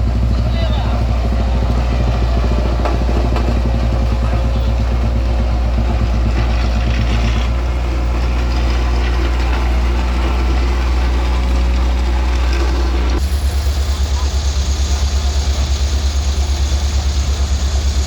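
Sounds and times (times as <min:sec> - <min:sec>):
heavy vehicle engine running: 0:00.0 - 0:18.0.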